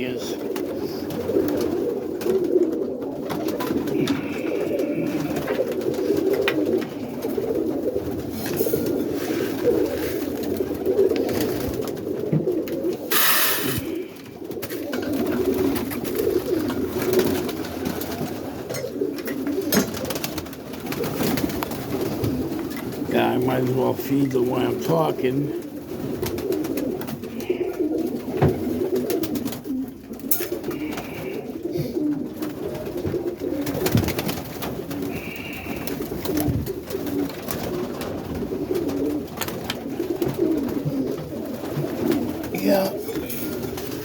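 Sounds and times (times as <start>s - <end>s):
pigeons cooing: 0.0s - 44.0s
rush of hissing noise: 13.1s - 14.0s.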